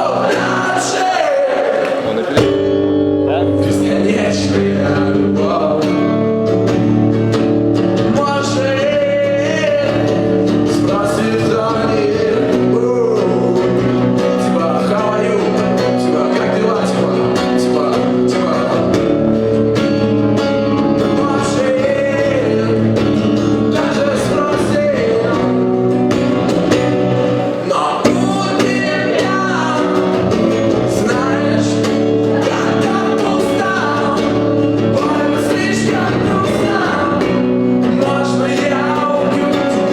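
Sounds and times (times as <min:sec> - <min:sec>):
acoustic guitar strumming: 0:00.0 - 0:39.9
person singing: 0:03.2 - 0:06.4, 0:08.0 - 0:19.2, 0:20.6 - 0:25.8, 0:26.7 - 0:39.9.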